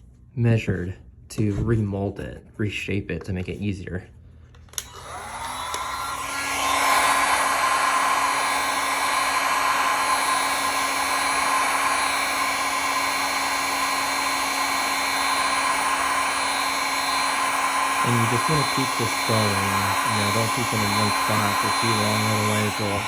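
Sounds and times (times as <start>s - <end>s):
fan motor whine: 4.7s - 23.0s
heat gun air rushing: 4.8s - 23.0s.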